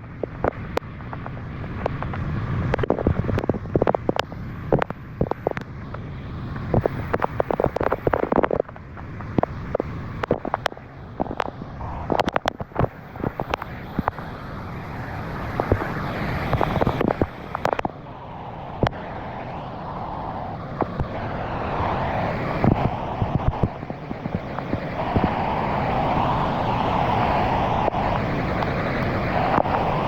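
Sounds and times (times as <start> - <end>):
sharp cracks and pops: 0.0 - 14.4, 15.4 - 18.0, 20.8 - 21.2.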